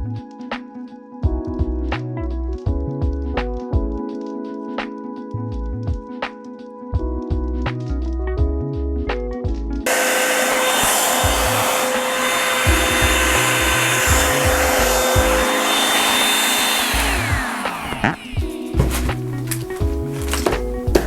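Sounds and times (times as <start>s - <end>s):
hair dryer blowing with whine: 9.9s - 21.0s.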